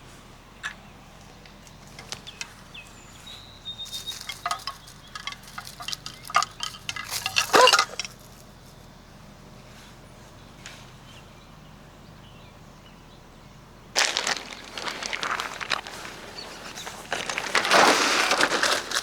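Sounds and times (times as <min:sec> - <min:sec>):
small hard objects clinking: 0:03.8 - 0:08.5, 0:14.0 - 0:19.0.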